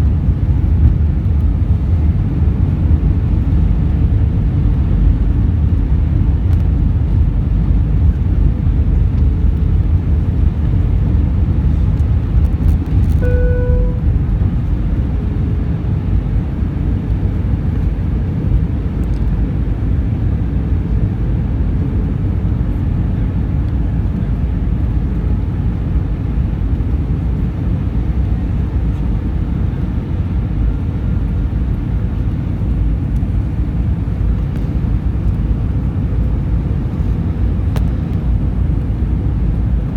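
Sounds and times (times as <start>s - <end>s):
airliner engine rumble: 0.0s - 39.9s
brief pitched tone: 13.1s - 14.2s.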